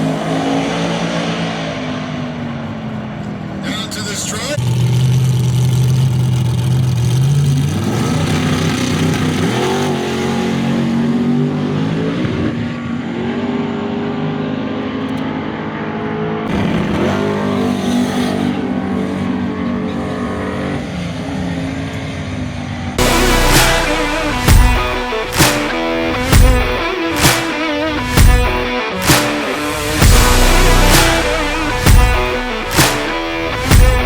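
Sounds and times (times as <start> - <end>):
truck engine at full throttle: 0.0 - 34.0.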